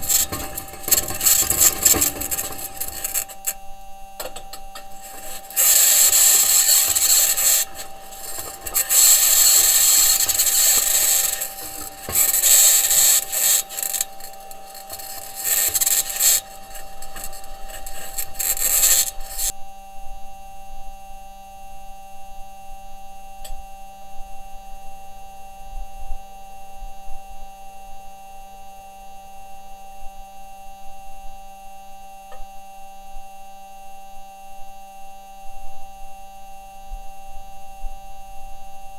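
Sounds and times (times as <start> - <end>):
electrical hum: 0.0 - 19.5
loud high-pitched scraping: 0.0 - 19.5
rover wheels working over ground: 0.0 - 19.5
faint ticks: 4.2 - 19.5.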